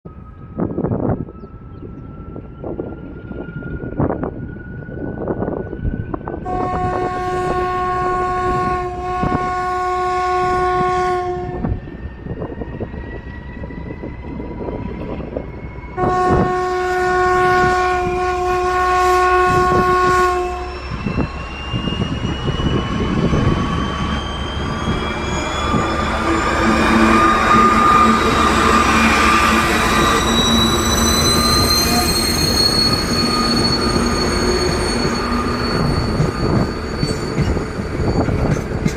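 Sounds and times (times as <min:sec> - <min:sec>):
locomotive horn blasts: 0:06.4 - 0:11.8, 0:16.0 - 0:21.2, 0:25.1 - 0:33.0
whine rising in pitch: 0:18.2 - 0:38.9.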